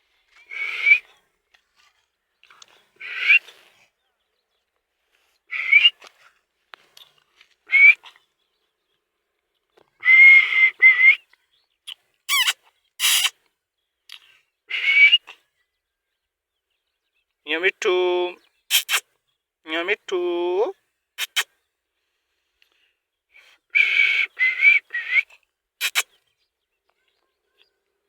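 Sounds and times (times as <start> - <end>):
parrot screeching: 12.3 - 13.3, 25.8 - 26.0.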